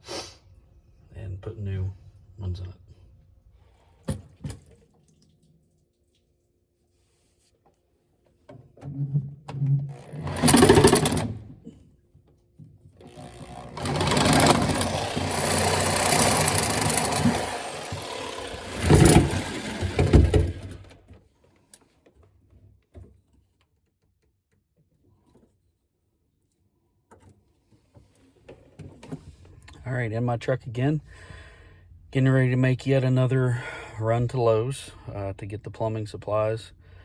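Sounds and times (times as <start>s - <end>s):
power saw cutting pipe: 10.0s - 11.4s, 13.0s - 20.9s.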